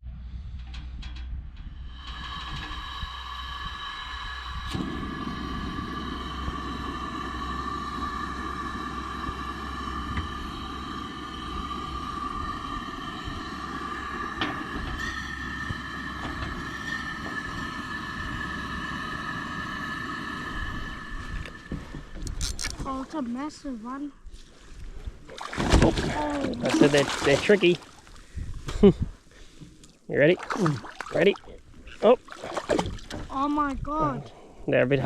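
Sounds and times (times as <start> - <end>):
motor running with high whine: 2.1 - 22.4.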